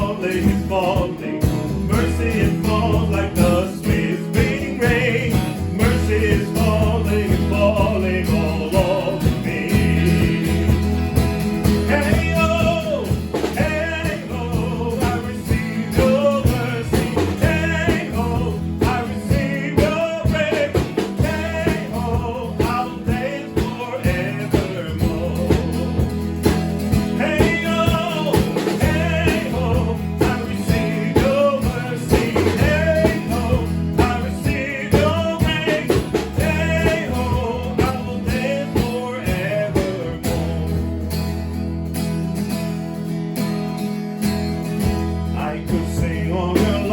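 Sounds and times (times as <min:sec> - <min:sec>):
person singing: 0:00.0 - 0:10.9, 0:11.9 - 0:26.0, 0:27.1 - 0:40.7
bass: 0:00.0 - 0:46.9
guitar: 0:00.0 - 0:46.9.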